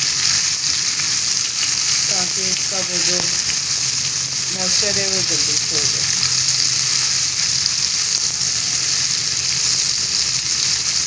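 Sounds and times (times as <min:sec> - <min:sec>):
okra sizzling in oil: 0:00.0 - 0:11.0.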